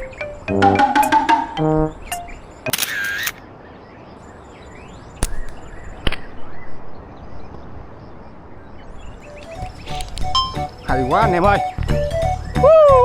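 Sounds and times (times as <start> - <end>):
slingshot snapping clicks: 5.2 - 6.3.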